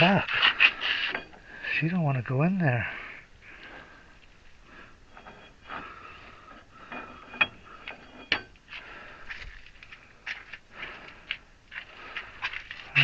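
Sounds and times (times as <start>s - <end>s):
metal scraping and clinking: 0.0s - 1.8s, 3.6s - 10.7s.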